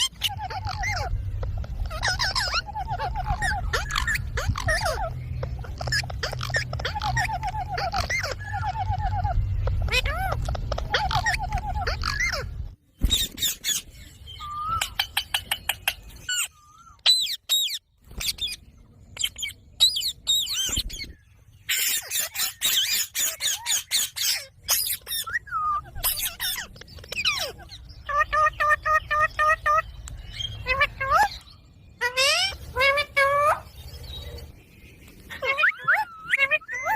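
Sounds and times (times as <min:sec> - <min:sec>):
parrot screeching: 0:00.0 - 0:05.1, 0:05.7 - 0:12.5, 0:35.3 - 0:36.9
parrot chirping and whistling: 0:01.8 - 0:12.5, 0:14.4 - 0:18.6, 0:21.7 - 0:29.7, 0:35.4 - 0:36.9.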